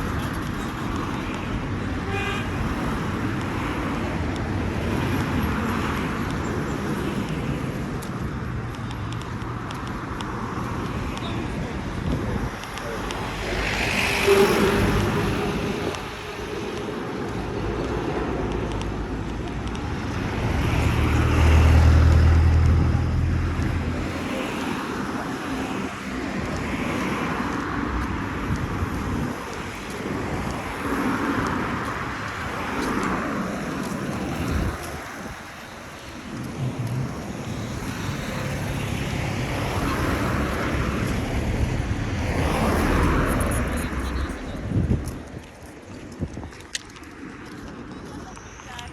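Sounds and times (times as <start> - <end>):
motor vehicles passing: 0.0 - 48.8
street noise: 0.0 - 48.9
vehicle low rumble: 4.8 - 25.9, 31.5 - 48.8.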